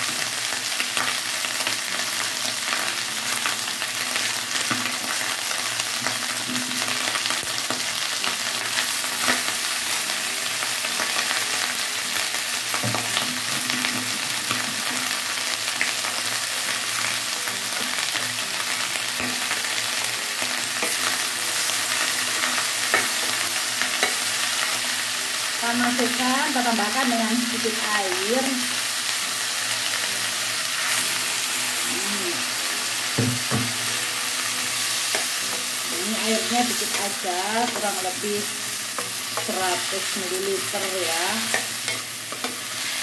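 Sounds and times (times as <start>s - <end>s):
food sizzling in hot oil: 0.0s - 43.0s.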